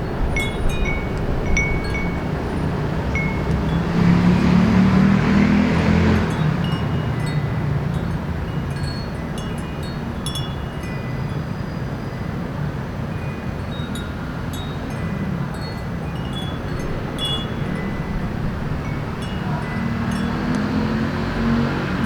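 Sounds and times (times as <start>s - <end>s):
wind chime tinkling: 0.0s - 4.5s, 6.1s - 21.7s
vehicle passing: 0.0s - 9.2s, 15.9s - 22.0s
low city traffic hum: 0.0s - 22.0s.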